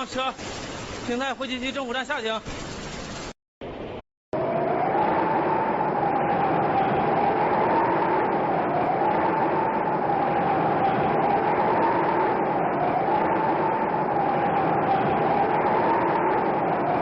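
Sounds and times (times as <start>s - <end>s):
train rushing noise: 4.4s - 17.0s
train whine: 4.4s - 17.0s.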